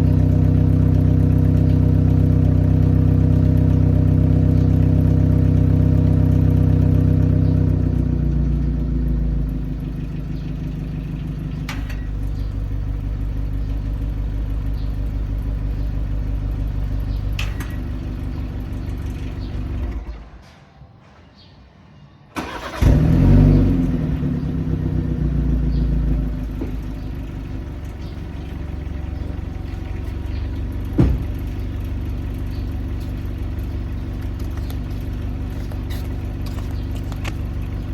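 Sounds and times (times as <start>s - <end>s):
car engine idling: 0.0s - 20.2s, 22.4s - 37.9s
engine starting with rev flare: 22.4s - 25.2s.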